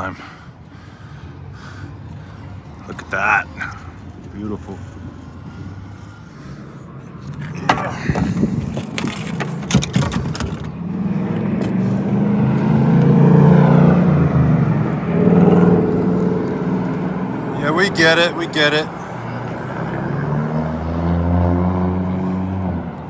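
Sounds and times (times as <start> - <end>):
sharp knocks and clatters: 7.3 - 10.8.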